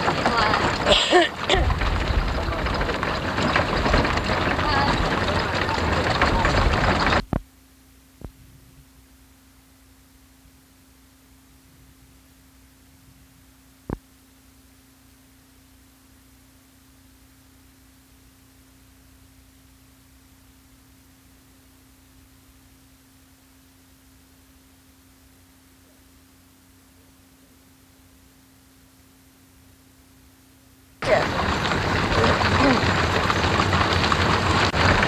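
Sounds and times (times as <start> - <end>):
low rumble: 0.0 - 7.3, 31.0 - 35.0
steady electrical hum: 0.0 - 35.0.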